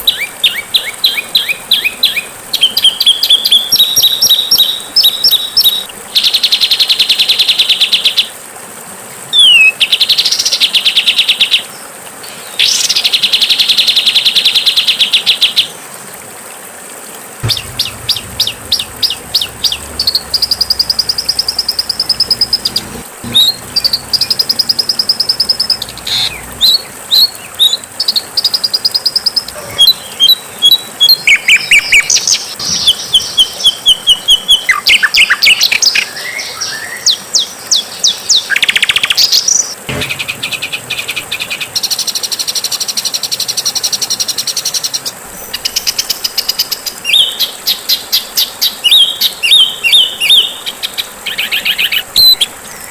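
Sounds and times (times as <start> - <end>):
songbird singing: 0.0 - 7.8, 17.4 - 52.9.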